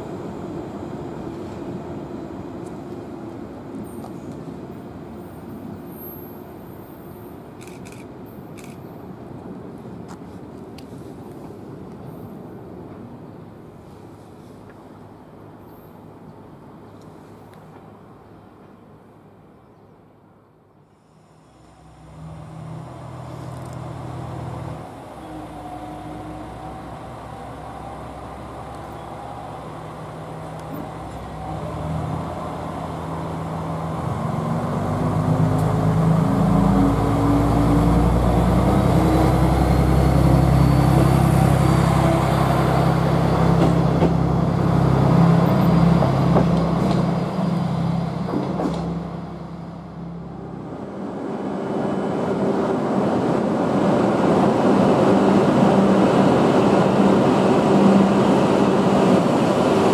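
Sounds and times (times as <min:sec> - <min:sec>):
diesel railcar engine accelerating: 0:20.8 - 0:59.9
train rumble: 0:21.0 - 0:59.9.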